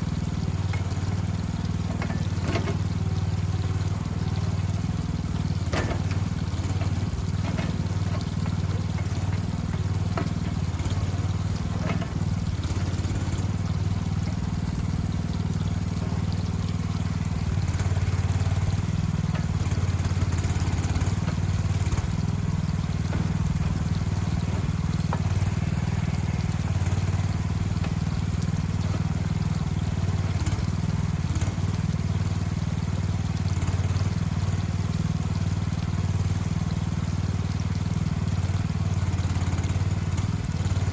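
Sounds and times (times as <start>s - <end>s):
short knocks and cracks: 0.0s - 32.2s
large machine engine running: 0.0s - 40.9s.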